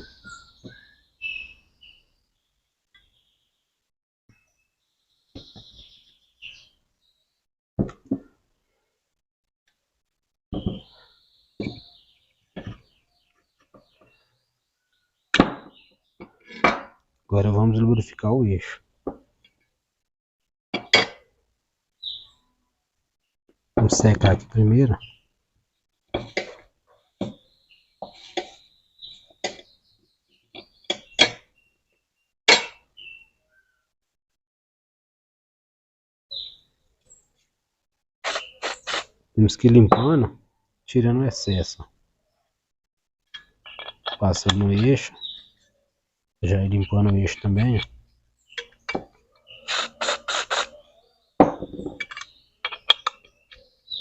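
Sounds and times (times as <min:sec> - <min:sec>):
cloth rubbing motor shaft: 0:49.6 - 0:50.8.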